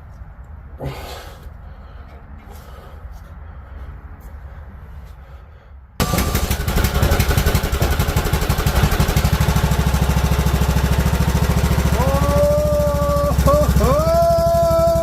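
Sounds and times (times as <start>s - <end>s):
mower engine starting and running: 6.0s - 15.0s.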